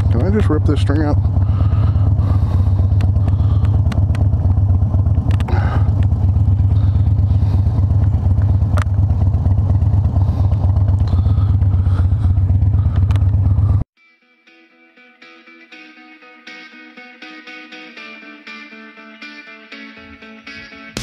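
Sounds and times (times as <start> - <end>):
motorcycle engine rumbling: 0.0 - 13.9.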